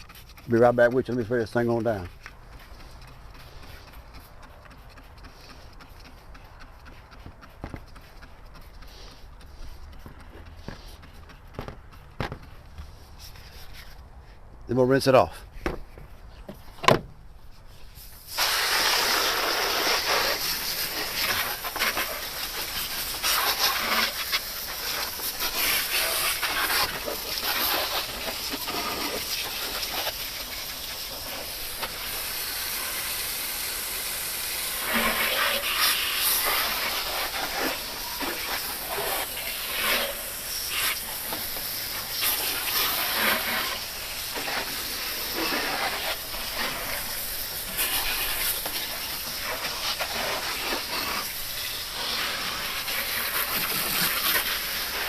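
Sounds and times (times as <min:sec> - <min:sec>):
water jet spraying engine: 0:18.1 - 0:55.0.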